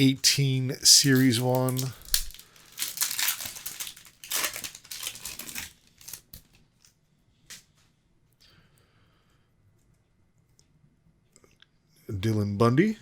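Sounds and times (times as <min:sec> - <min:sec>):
plastic wrapper crinkling and tearing: 0:00.8 - 0:07.0.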